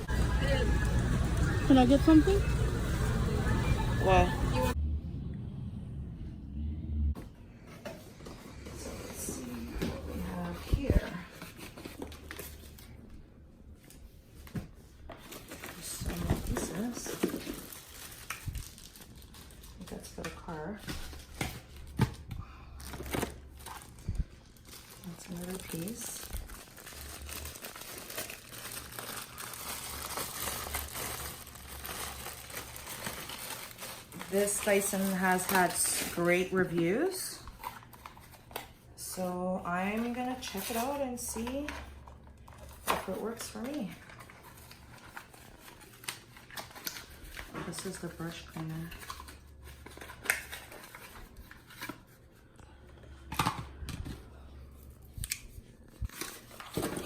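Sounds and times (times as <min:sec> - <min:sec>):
plastic rustling: 0:13.8 - 0:39.1, 0:39.8 - 0:52.5, 0:54.2 - 0:57.0
plastic packaging crinkling: 0:15.1 - 0:22.0, 0:22.8 - 0:38.8, 0:39.9 - 0:52.2, 0:55.1 - 0:57.0.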